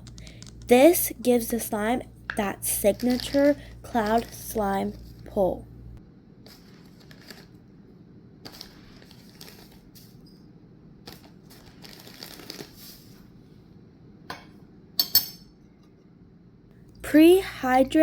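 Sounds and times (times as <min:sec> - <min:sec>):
small objects tapping and rustling: 0:00.0 - 0:00.7, 0:02.3 - 0:05.0.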